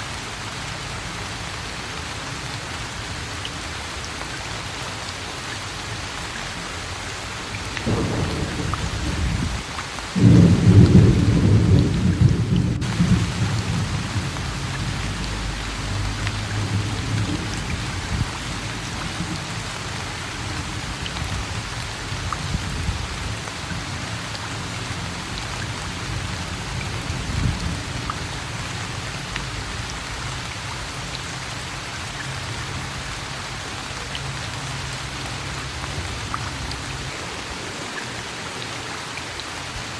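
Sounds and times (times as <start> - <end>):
steady rain falling: 0.0 - 39.9
thunder rumbling: 7.8 - 23.0, 35.3 - 39.7.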